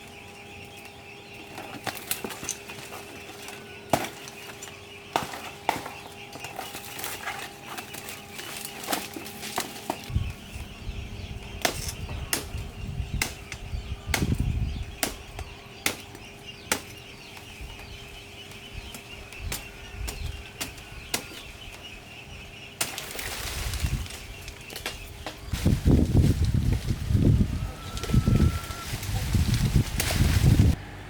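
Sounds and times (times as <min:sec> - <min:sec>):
high-pitched hum: 0:26.5 - 0:31.0.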